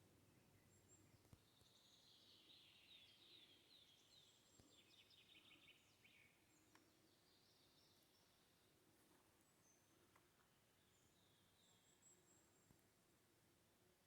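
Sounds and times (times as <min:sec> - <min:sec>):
faint songbird singing: 0:00.0 - 0:13.2
faint click: 0:06.6 - 0:06.9, 0:10.0 - 0:10.5.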